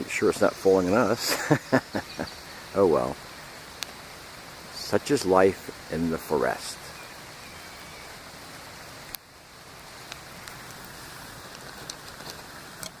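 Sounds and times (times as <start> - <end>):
steady rain falling: 0.0 - 13.0
light ticks: 3.7 - 4.0, 9.0 - 9.3, 10.0 - 13.0.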